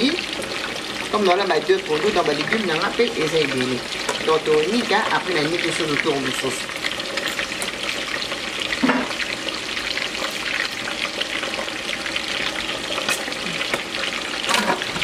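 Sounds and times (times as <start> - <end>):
meat sizzling in pans: 0.0 - 15.0
kitchenware knocks: 8.8 - 9.2.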